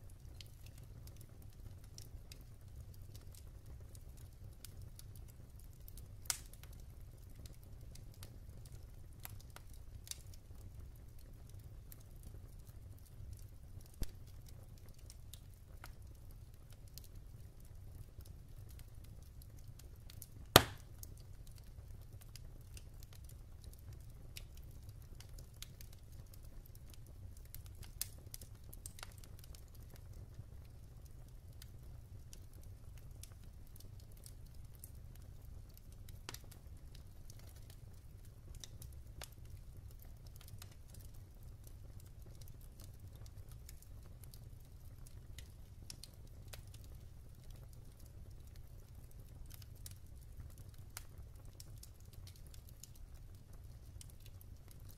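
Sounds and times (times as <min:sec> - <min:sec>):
wood fire crackling: 0:00.0 - 0:54.9
loud sharp pop: 0:20.6 - 0:20.8.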